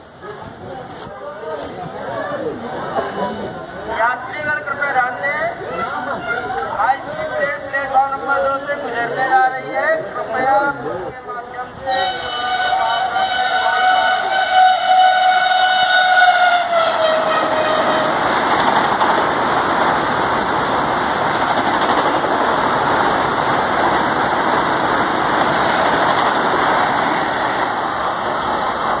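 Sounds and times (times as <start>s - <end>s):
train coaches rushing past: 0.0s - 29.0s
train horn: 11.9s - 18.2s.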